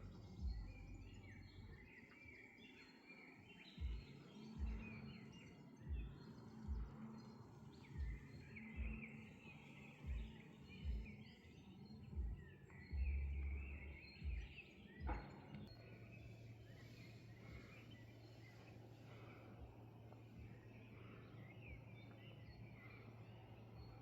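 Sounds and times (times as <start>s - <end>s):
dull low thumps: 0.0s - 1.7s, 3.8s - 5.0s, 5.9s - 7.0s, 8.0s - 9.0s, 10.0s - 11.2s, 12.2s - 15.7s
small birds chirping: 0.0s - 24.0s.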